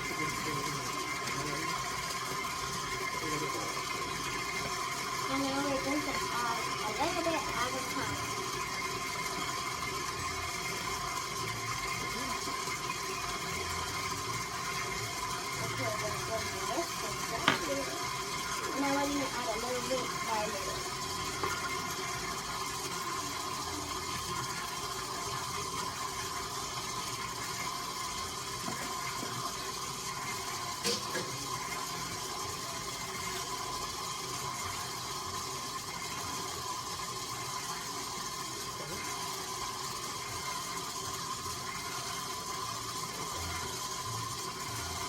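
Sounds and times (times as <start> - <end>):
electric mixer running: 0.0 - 45.0.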